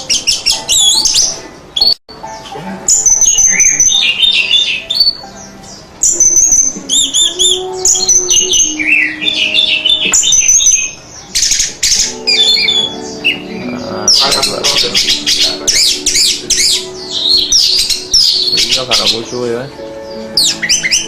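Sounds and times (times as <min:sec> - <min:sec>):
thrush singing whistled phrases: 0:02.9 - 0:05.3, 0:06.0 - 0:19.3, 0:20.2 - 0:21.0.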